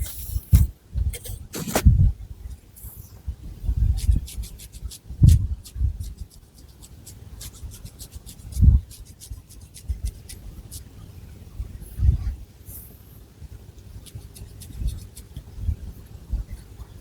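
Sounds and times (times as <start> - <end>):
fingernails scratching hair: 14.0 - 15.4.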